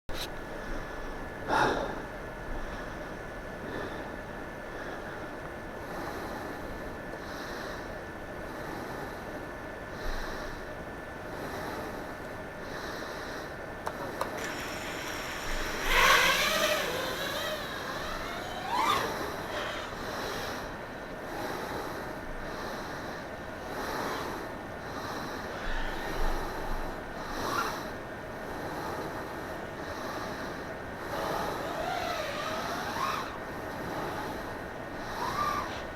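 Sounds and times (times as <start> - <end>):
steady hiss: 0.3 - 35.9
drone motors whining: 13.9 - 21.2, 25.4 - 26.9, 31.0 - 35.9.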